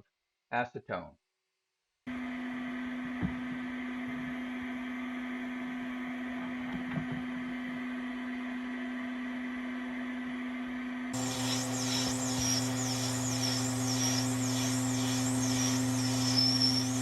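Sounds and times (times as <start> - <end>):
small electric motor humming: 11.2 - 17.0.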